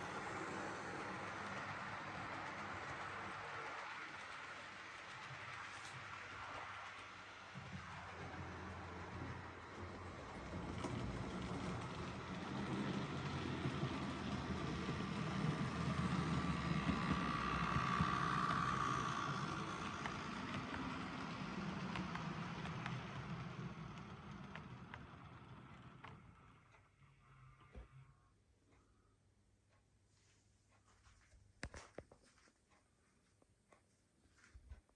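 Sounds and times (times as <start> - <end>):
model train rumbling on track: 0.0 - 27.7
motor whine: 7.6 - 23.3.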